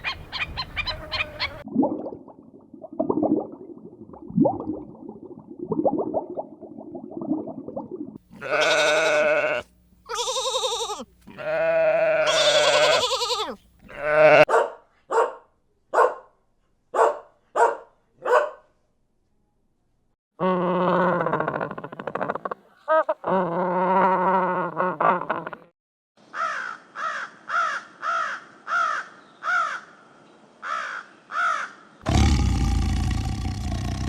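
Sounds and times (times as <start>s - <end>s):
animal bleating: 8.3s - 14.5s.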